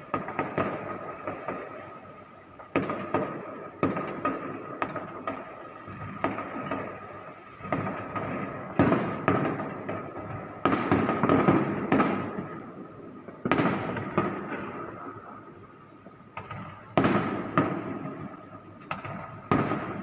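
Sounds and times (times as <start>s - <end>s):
aerial fireworks bangs: 2.7s - 15.2s, 16.3s - 20.0s.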